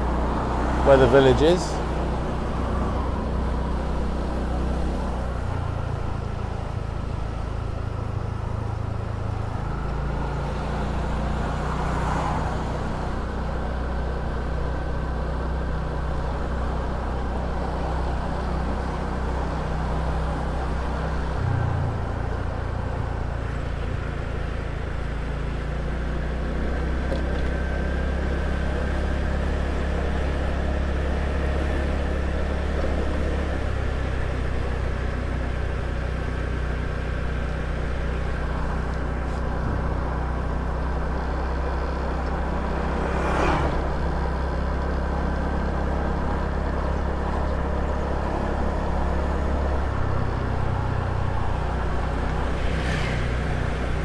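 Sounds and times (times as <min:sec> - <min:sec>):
motor scooter engine running: 0:12.9 - 0:54.0.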